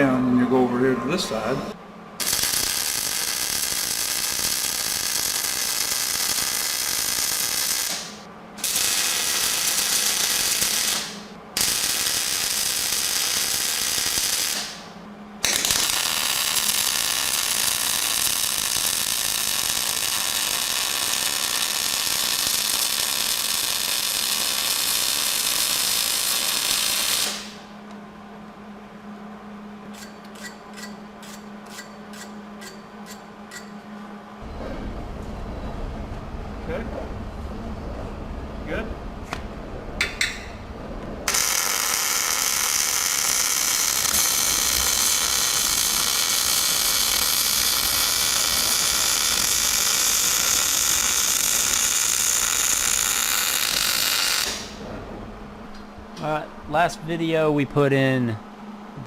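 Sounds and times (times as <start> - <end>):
steady low hum: 0.0 - 24.7, 26.1 - 46.3, 54.4 - 59.0
arc welding crackling and hissing: 2.2 - 27.7, 41.2 - 54.8.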